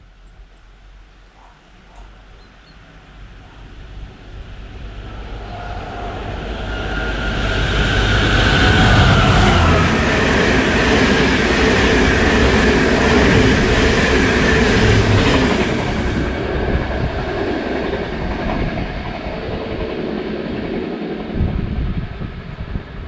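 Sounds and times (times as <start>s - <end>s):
train wheels rushing on rail: 3.0s - 23.0s
faint falling whine: 4.6s - 9.9s.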